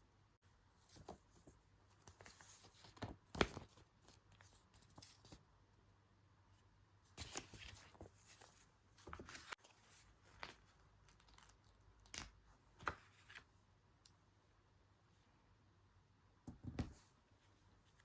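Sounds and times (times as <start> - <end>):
paper rustling: 7.2 - 11.6.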